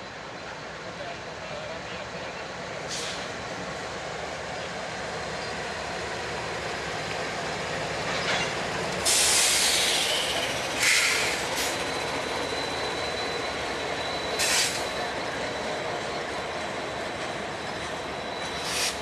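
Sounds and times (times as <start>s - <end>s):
diesel locomotive rumble: 0.0s - 19.0s
train wheels screeching: 4.6s - 19.0s
thin steady squeal: 10.0s - 16.6s, 17.4s - 19.0s.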